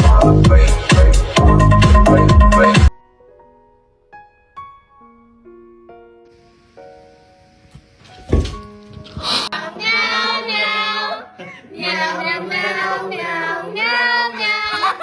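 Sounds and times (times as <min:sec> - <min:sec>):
thump: 0:07.7 - 0:09.3.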